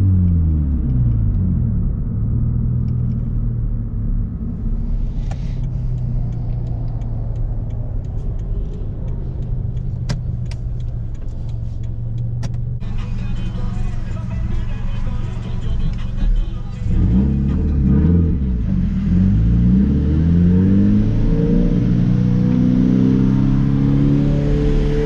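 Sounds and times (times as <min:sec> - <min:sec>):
car engine running: 0:00.0 - 0:19.9
exhaust pops and crackles: 0:04.8 - 0:13.2.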